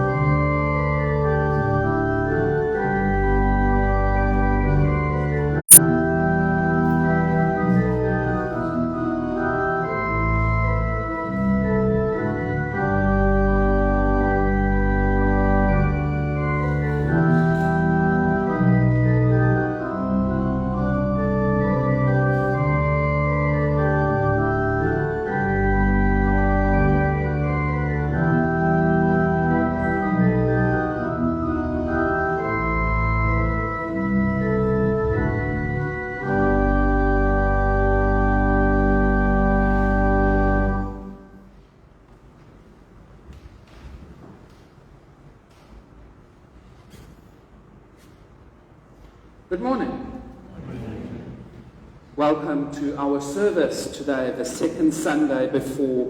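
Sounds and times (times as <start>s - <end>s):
church organ chords: 0.0s - 41.7s.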